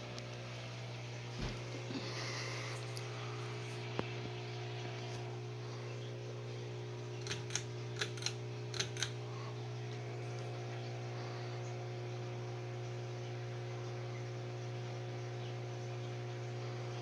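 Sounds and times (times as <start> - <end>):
ceiling fan motor humming: 0.0 - 17.0
sharp clicks: 7.2 - 9.2.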